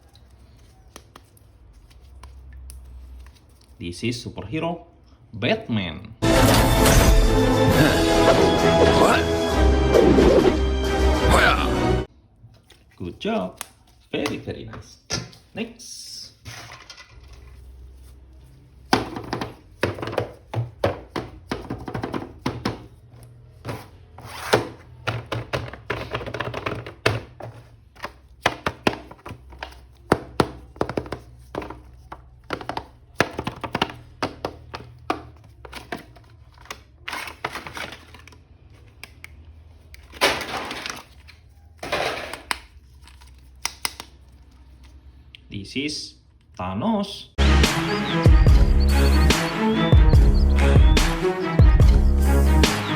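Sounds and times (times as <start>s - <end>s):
plastic toy clicks and snaps: 43.6s - 44.2s.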